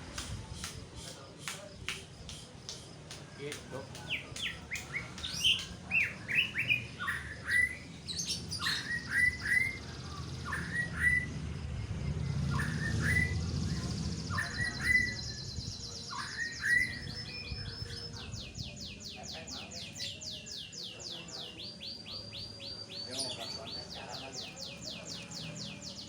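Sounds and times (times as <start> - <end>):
bird whistling song: 3.9 - 26.0.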